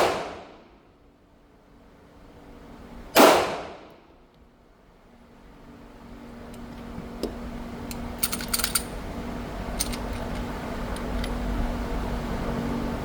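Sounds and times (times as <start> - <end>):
motorized target carrier hum: 0.0 - 13.0
light metallic clinks: 7.8 - 9.0.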